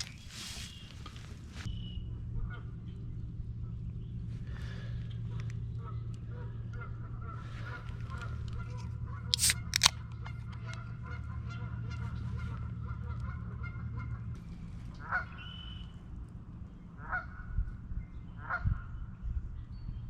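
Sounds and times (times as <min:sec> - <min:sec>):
steady low hum: 0:00.0 - 0:20.0
sharp clicks: 0:09.4 - 0:10.8.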